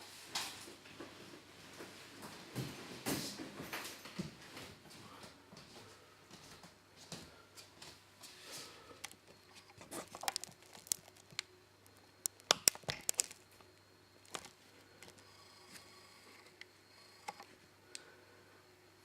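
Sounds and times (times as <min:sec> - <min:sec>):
crinkling and rustling: 0:07.8 - 0:15.8.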